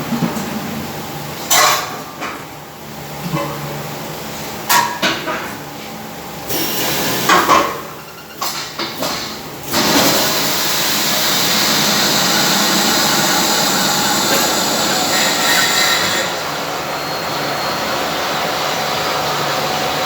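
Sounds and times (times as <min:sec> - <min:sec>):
washing machine running: 0:05.6 - 0:20.0.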